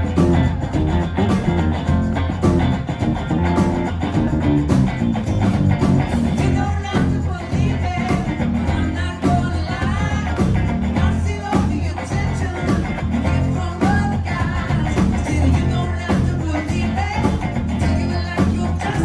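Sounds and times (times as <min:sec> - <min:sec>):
bass guitar: 0:00.0 - 0:19.0
drums: 0:00.0 - 0:19.0
electric guitar: 0:00.0 - 0:19.0
lead vocal singing: 0:06.4 - 0:19.0.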